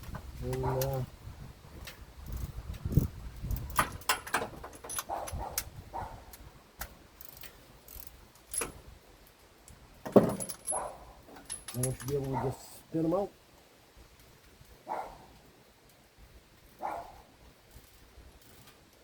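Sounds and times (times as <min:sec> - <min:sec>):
socket wrench clinking on metal: 0:03.6 - 0:05.7, 0:07.2 - 0:08.8, 0:10.1 - 0:12.4.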